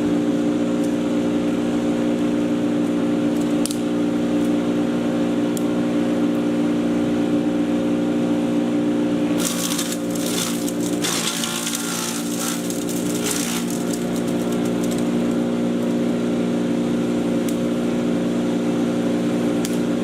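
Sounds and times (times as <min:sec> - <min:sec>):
chipper shredder motor hum: 0:00.0 - 0:20.0
crackling crunch of chipping: 0:09.4 - 0:16.0.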